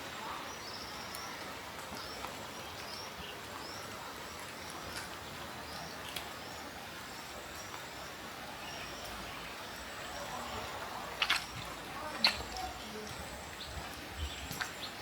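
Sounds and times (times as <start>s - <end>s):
rain hissing: 0.0s - 15.0s
raindrops tapping: 9.9s - 15.0s.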